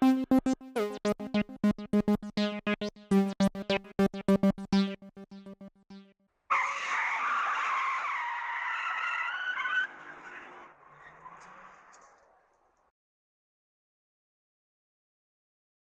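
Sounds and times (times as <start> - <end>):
synthesizer music: 0.0 - 6.2.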